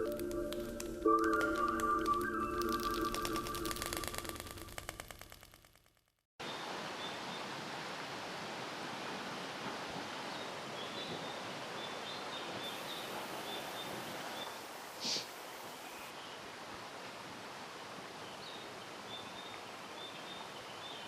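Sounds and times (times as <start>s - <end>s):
stream water rushing: 6.4s - 15.1s.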